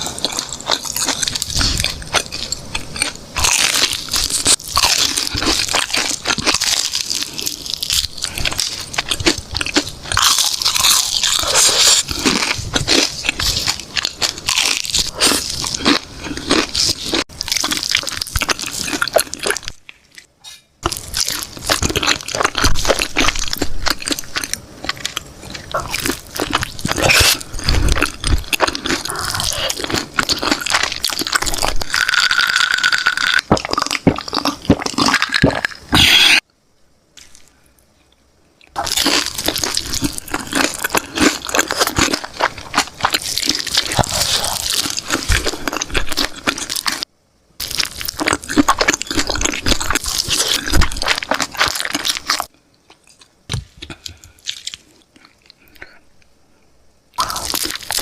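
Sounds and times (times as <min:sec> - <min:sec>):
biting and chewing chicken: 0:00.0 - 0:20.2, 0:20.8 - 0:36.4, 0:38.7 - 0:56.0, 0:57.2 - 0:58.0.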